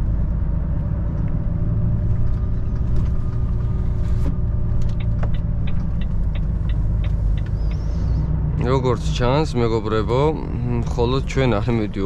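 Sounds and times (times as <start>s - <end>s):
truck diesel engine rumble: 0.0s - 12.0s
turn signal ticking: 4.6s - 9.2s.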